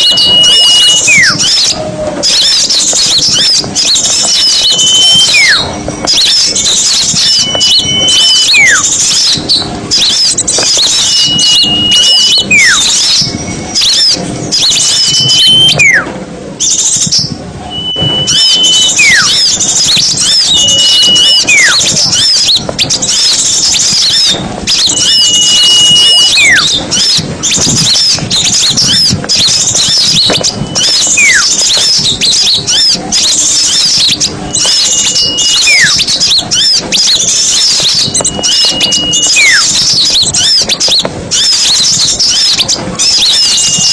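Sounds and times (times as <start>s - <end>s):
whistle sliding down: 0.0s - 1.7s, 10.0s - 16.1s, 17.7s - 29.1s
small songbirds chattering: 0.0s - 16.0s, 16.6s - 43.9s.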